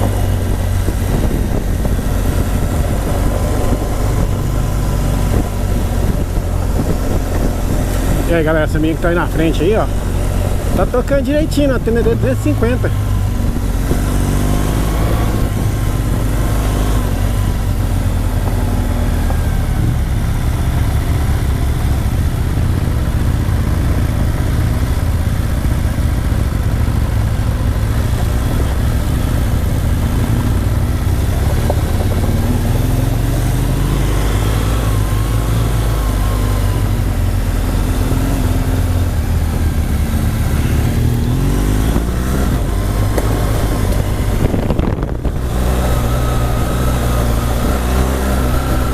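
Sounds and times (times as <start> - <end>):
wind rush: 0.0 - 20.3, 37.8 - 48.9
motorcycle engine running: 0.0 - 48.9.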